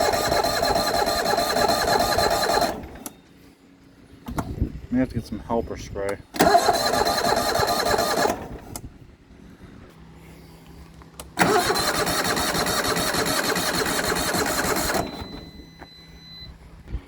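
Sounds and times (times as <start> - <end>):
starter cranking engine: 0.0 - 3.1, 6.3 - 8.9, 11.2 - 15.5.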